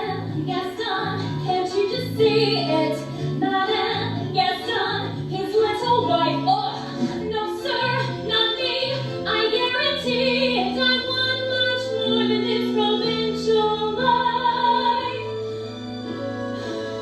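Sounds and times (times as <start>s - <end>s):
theatre orchestra playing: 10.2s - 17.0s.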